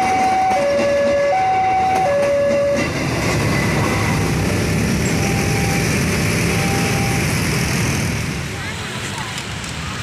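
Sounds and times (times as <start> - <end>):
train wheels rumbling on track: 0.0 - 10.0
two-note warning signal: 5.0 - 5.9.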